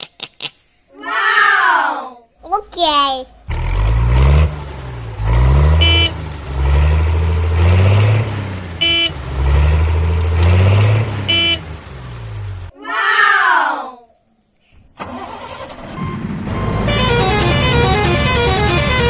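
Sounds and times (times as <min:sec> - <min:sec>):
horn toots: 0:05.6 - 0:06.4, 0:08.8 - 0:09.3, 0:11.0 - 0:11.8, 0:16.1 - 0:19.0
cartoon engine revving: 0:15.0 - 0:19.0.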